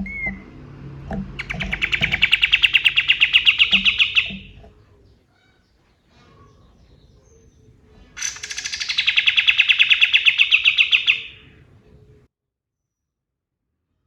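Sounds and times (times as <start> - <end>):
rapid rattling trill: 1.4 - 4.6, 8.2 - 11.4.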